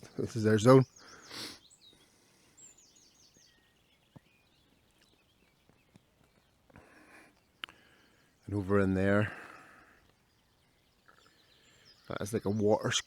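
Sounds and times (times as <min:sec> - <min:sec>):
songbird chirping: 0:00.0 - 0:13.0
faint ticks: 0:05.9 - 0:07.8.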